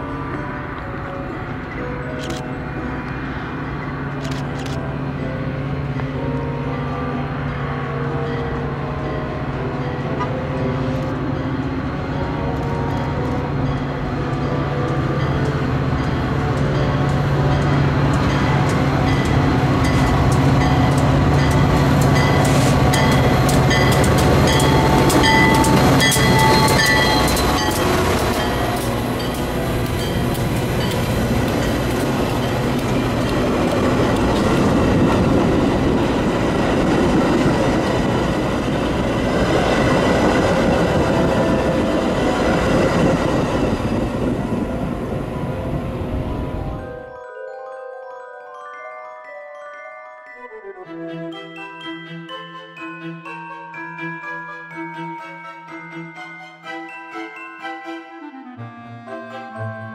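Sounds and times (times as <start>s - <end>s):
locomotive engine hum: 0.0s - 47.0s
rail cars rumbling: 0.0s - 47.2s.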